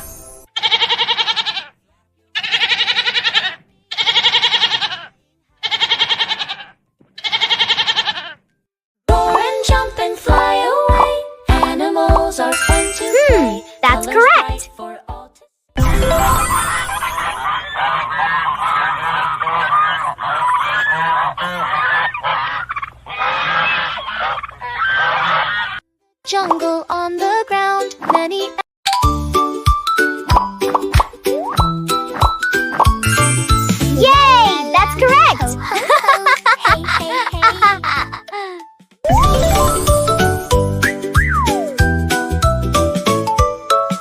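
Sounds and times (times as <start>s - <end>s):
farm animal bleating: 0.6s - 8.4s.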